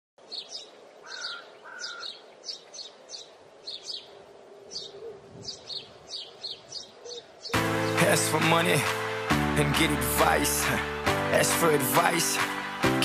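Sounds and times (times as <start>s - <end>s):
birds chirping: 0.2s - 10.5s.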